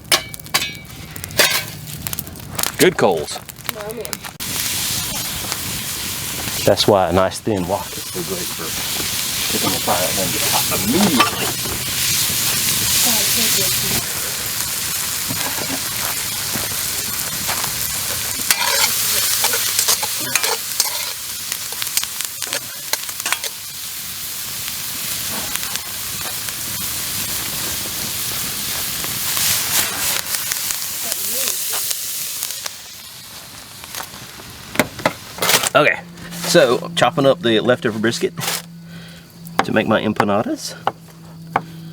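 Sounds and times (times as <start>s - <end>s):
food sizzling in a wok: 3.7s - 35.7s
utensil stirring in wok: 18.1s - 23.8s.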